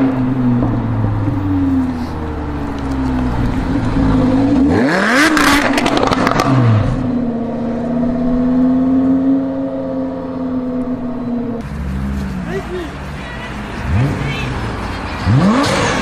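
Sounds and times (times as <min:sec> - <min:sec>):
car engine revving: 0:00.0 - 0:16.0
exhaust crackles and pops: 0:02.6 - 0:07.0.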